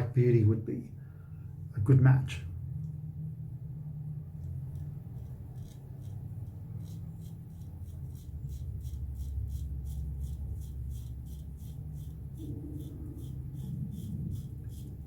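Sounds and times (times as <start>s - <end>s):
steady low hum: 0.0s - 15.0s
razor scraping through stubble: 4.4s - 15.0s.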